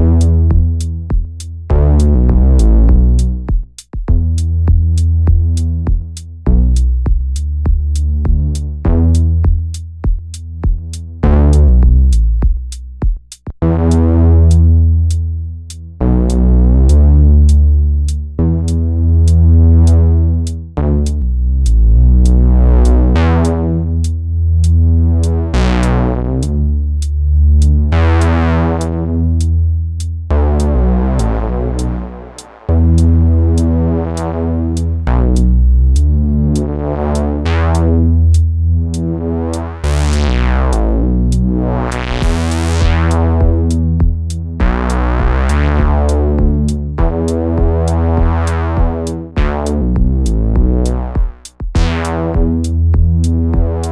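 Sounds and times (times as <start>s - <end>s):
drum machine ticking: 0.0s - 21.2s, 41.3s - 53.9s
gritty synth bass sequence: 0.0s - 53.9s.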